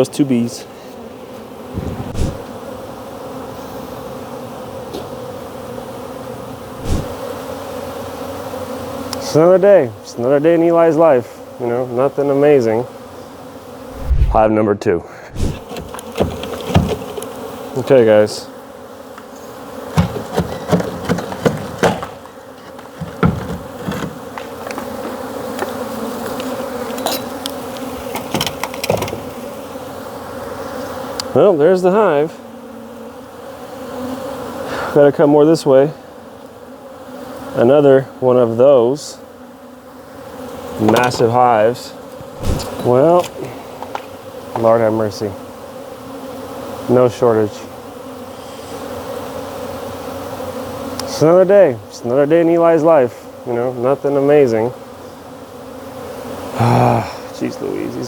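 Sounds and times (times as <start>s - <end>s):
bees buzzing: 0.0s - 58.0s
brief thump: 1.7s - 2.5s, 6.8s - 7.2s, 13.9s - 14.5s, 15.3s - 17.1s, 42.2s - 42.9s
sharp knocks and clicks: 15.6s - 17.3s, 20.0s - 25.7s, 28.2s - 29.3s.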